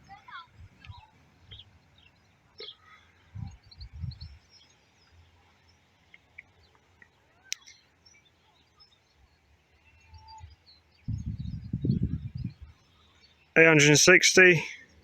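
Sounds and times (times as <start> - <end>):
faint bird chirps: 0.1 - 13.6
wind buffeting microphone: 3.3 - 4.5, 10.3 - 12.8.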